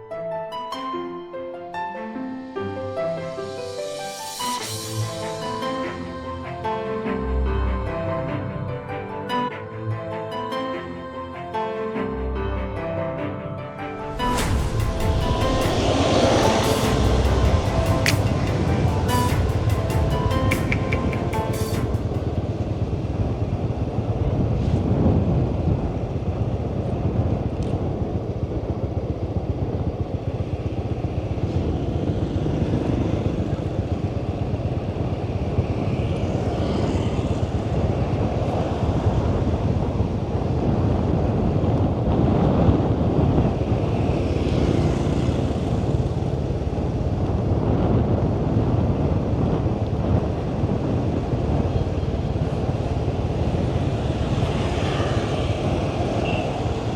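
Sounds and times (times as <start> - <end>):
road noise: 1.7 - 56.9
wind against microphone: 14.0 - 56.9.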